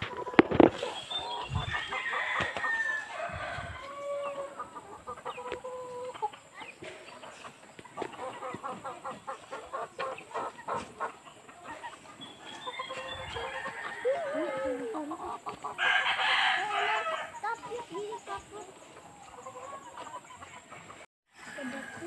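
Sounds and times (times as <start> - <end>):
birds calling: 0.0 - 21.6.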